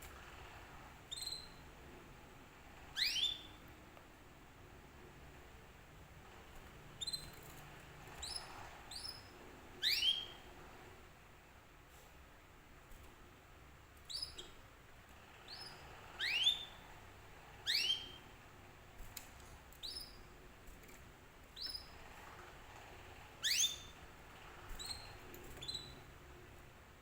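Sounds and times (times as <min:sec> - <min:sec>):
canary rising whistled chirps: 0:02.9 - 0:03.6, 0:08.2 - 0:10.4, 0:15.5 - 0:16.8, 0:17.6 - 0:18.2, 0:23.4 - 0:24.0.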